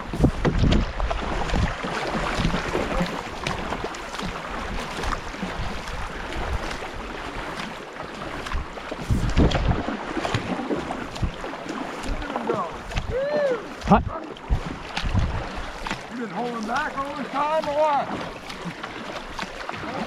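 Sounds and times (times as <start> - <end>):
wind buffeting on microphone: 0.0 - 3.9, 8.3 - 16.0
paddle splashes: 0.0 - 20.0
rushing river water: 0.0 - 20.0.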